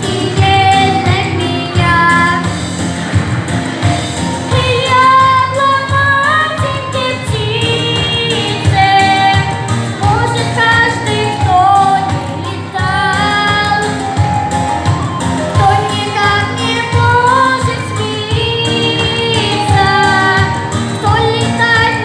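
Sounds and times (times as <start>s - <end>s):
woman singing: 0.0s - 3.0s, 3.8s - 22.0s
backing track with steady beat: 0.0s - 22.0s.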